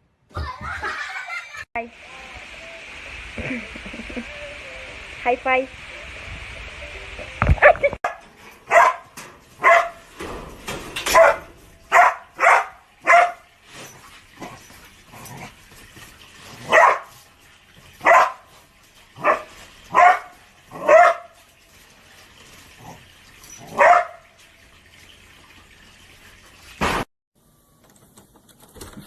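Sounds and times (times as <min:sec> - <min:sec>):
dog barking: 0:08.0 - 0:10.0, 0:11.1 - 0:13.5, 0:16.6 - 0:17.2, 0:18.0 - 0:18.5, 0:19.2 - 0:21.4, 0:23.7 - 0:24.3.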